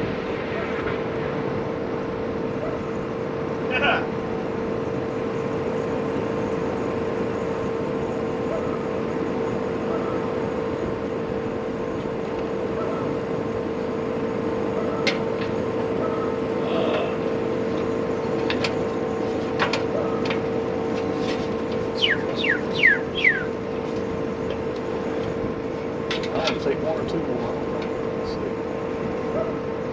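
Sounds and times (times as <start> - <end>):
motor running with hum: 0.0 - 29.9
high falling chirps: 21.9 - 23.6.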